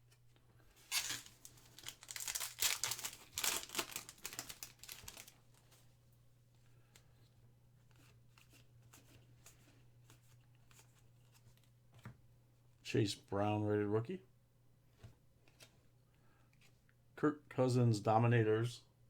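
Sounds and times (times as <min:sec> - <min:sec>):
foil wrapper tearing and crinkling: 0:00.8 - 0:05.6.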